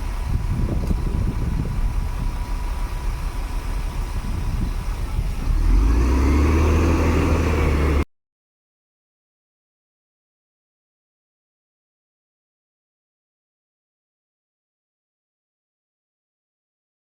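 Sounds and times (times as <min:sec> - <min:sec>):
heavy diesel engine revving: 0:00.0 - 0:08.1.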